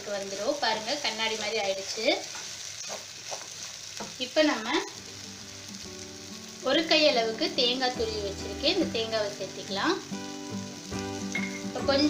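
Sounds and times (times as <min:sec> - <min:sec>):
food sizzling in oil: 0:00.0 - 0:12.0
background music: 0:05.0 - 0:12.0.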